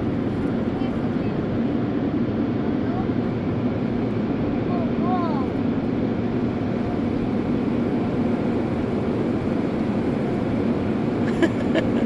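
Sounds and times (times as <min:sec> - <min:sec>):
car wash machinery rumble: 0:06.2 - 0:12.0.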